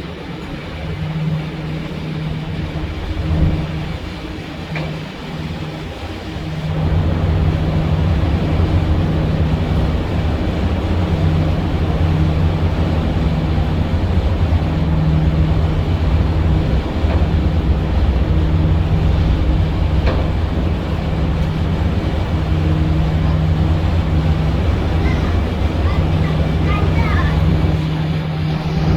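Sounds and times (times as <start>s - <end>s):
boat engine droning: 0.0s - 28.9s.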